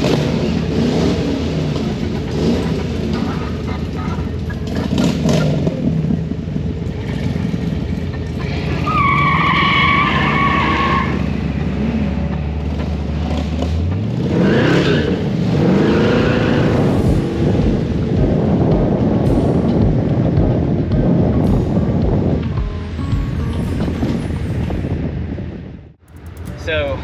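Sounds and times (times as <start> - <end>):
tire squeal: 0.0 - 20.8
vehicles driving past: 0.0 - 27.0
engine revving sharply: 10.2 - 24.2.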